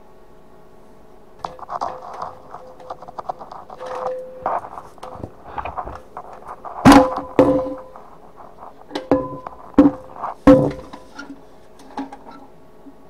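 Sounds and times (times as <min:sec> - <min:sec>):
loud metal clank: 0:03.8 - 0:05.9, 0:06.8 - 0:08.0, 0:08.9 - 0:12.4.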